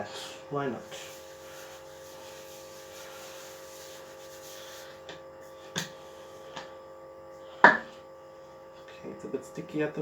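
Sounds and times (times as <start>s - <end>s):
faint rubbing of pastry: 0.0s - 6.5s
background hum: 0.0s - 10.0s.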